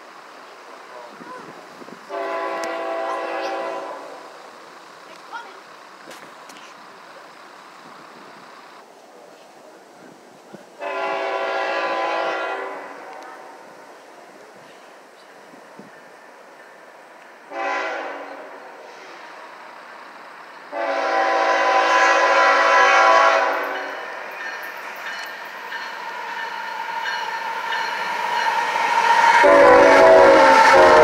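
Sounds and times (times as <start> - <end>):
diesel locomotives passing: 0.0 - 31.0
train rumble: 0.0 - 31.0
train air horn blasts: 2.1 - 4.3, 10.8 - 13.5, 17.5 - 19.4, 20.7 - 24.2, 25.8 - 31.0.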